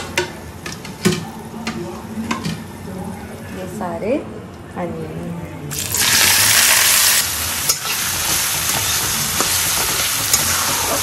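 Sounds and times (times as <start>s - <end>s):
onions sizzling in hot oil: 5.7s - 11.0s.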